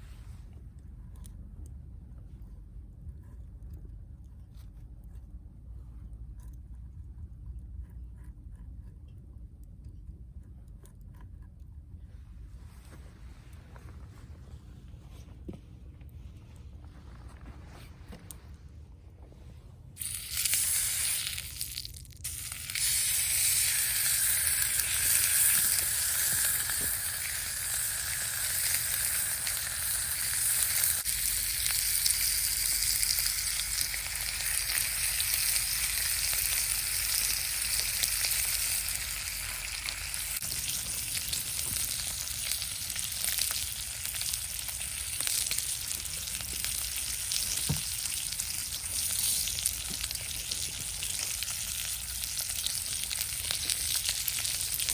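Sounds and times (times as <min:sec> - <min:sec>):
food sizzling in a pan: 0:20.0 - 0:54.9.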